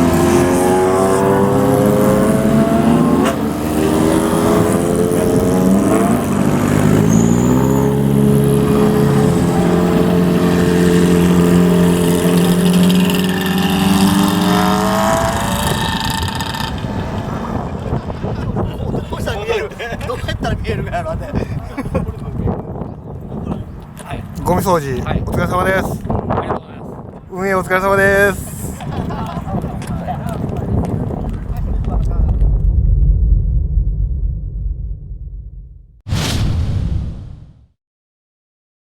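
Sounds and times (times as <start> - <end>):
motorcycle engines revving: 0.0 - 18.7.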